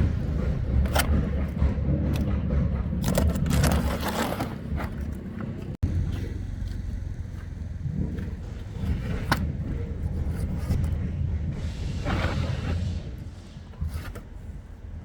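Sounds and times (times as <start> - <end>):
scraping and knocking: 0.0 - 5.8.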